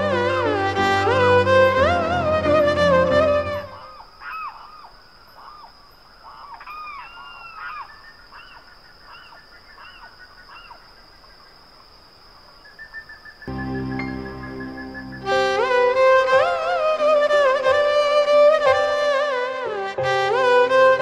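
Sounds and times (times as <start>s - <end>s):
faint high whine: 12.7s - 17.8s
birds calling: 12.8s - 16.8s.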